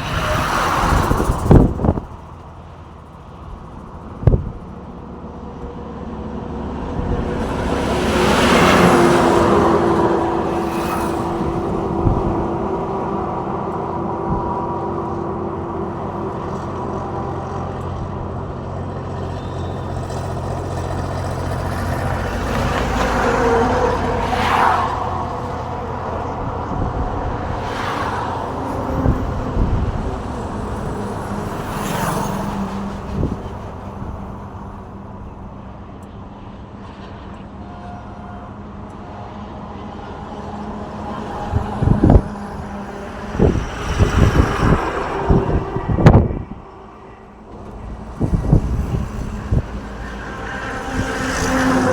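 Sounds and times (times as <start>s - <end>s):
car and truck engines: 0.0s - 51.9s
vehicles swishing past: 0.0s - 51.9s.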